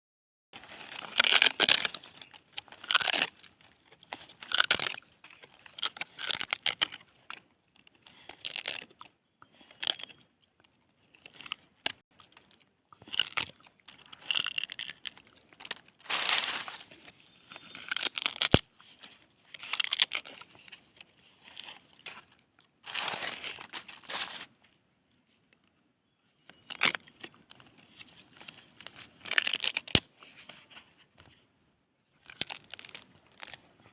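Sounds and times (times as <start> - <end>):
dog chewing dried leaves: 0.7 - 7.4, 12.2 - 17.0.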